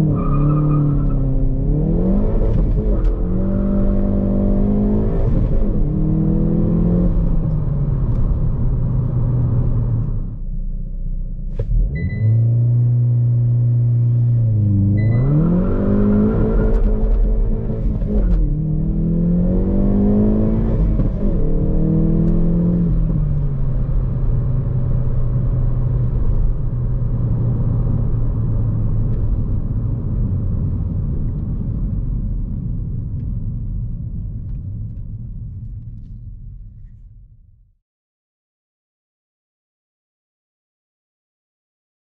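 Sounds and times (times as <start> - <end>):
car engine accelerating hard: 0.0 - 10.3, 11.5 - 31.8.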